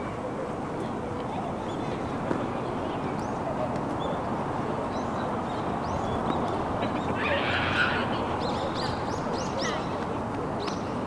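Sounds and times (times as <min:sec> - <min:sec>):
birds chirping: 0:02.9 - 0:10.0.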